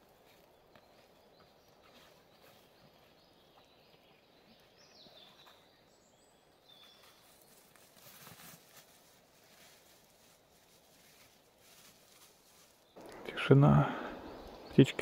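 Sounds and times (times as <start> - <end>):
faint rustle: 6.7 - 14.2.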